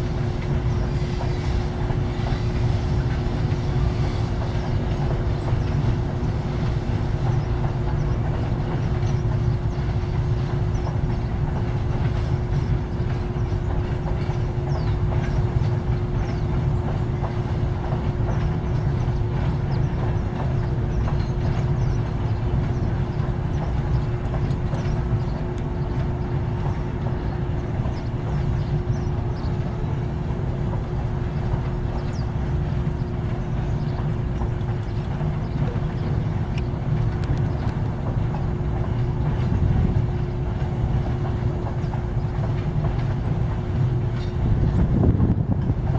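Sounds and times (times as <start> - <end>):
train wheels rumbling on rails: 0.0 - 45.9
faint clicks: 36.5 - 38.0.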